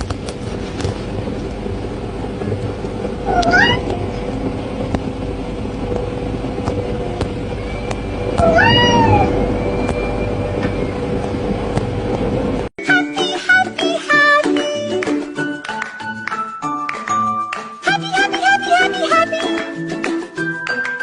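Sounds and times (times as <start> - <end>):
low rumble with hum: 0.0 - 12.7
cat meowing: 3.3 - 4.2, 8.4 - 9.5.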